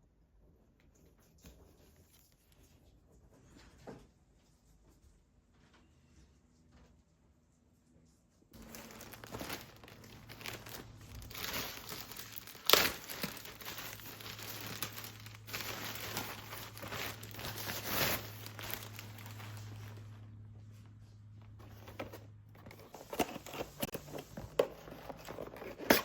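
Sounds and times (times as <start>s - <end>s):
packaging crinkling and rustling: 8.6s - 20.4s, 21.4s - 26.0s.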